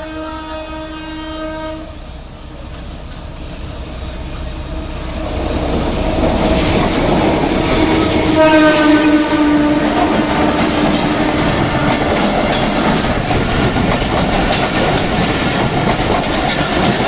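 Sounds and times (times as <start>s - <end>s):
train horn: 0.0s - 2.1s, 7.5s - 12.8s
train rumble and rail clatter: 0.0s - 17.0s.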